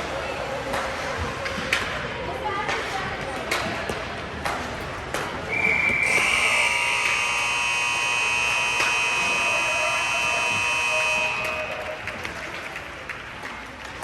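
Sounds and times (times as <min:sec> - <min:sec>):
arena buzzer: 0:05.8 - 0:12.9.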